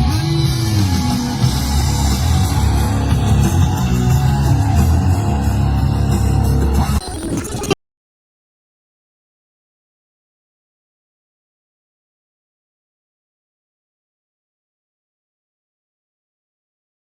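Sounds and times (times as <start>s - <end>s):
rock music with heavy bass: 0.0s - 7.7s.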